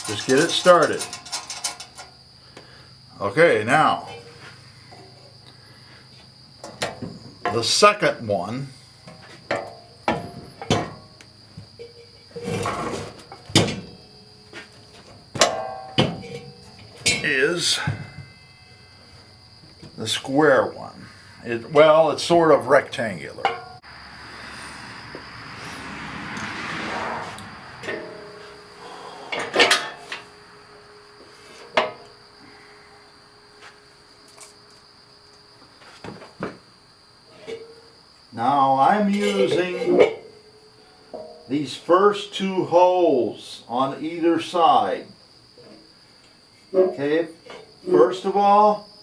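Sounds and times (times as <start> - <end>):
sharp metal clank: 0.0 - 2.1, 15.4 - 19.0, 29.3 - 30.3
metal parts clinking: 0.0 - 2.2
metallic clinks and knocks: 0.0 - 2.2, 15.0 - 19.3, 39.2 - 41.5
scraping rustle: 0.0 - 2.2, 11.8 - 15.2.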